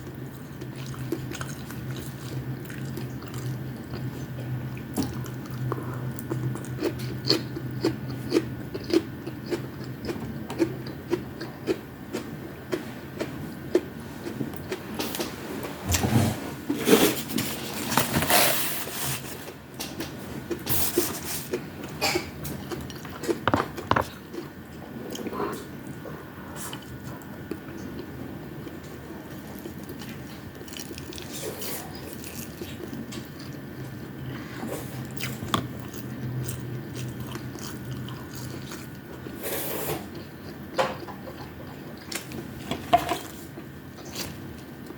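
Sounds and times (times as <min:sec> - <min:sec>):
chewing and biting: 0:35.1 - 0:39.2.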